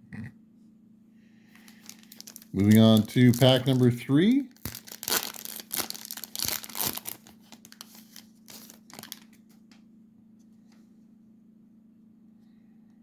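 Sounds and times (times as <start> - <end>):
faint low hum: 0.0 - 13.0
wrapper tearing and crinkling: 1.6 - 9.4.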